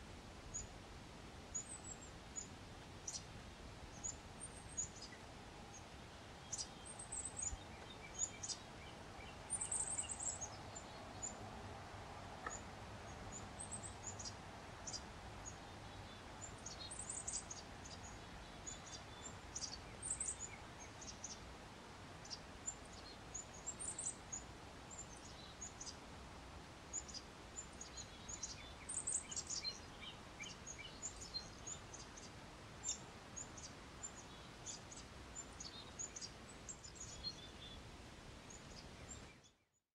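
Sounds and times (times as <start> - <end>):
light rain hissing: 0.0 - 39.5
small birds chirping: 0.4 - 0.8, 1.5 - 39.8.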